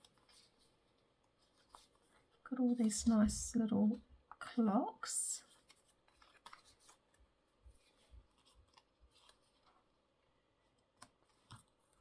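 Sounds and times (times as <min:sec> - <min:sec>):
paper rustling and clicks: 0:05.6 - 0:09.9, 0:10.6 - 0:12.0.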